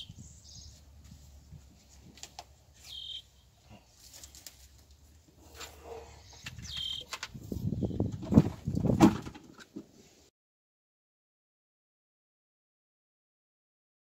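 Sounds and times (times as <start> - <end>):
bird chirping: 0.0 - 0.9, 2.8 - 3.8, 5.9 - 8.1
rustling and scraping of twigs: 0.5 - 10.1.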